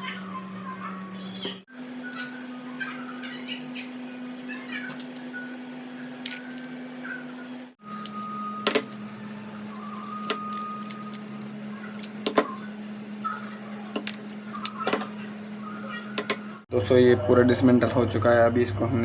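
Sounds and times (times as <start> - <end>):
steady low hum: 0.0 - 16.7
small metal parts clinking: 2.0 - 6.8, 7.8 - 15.1.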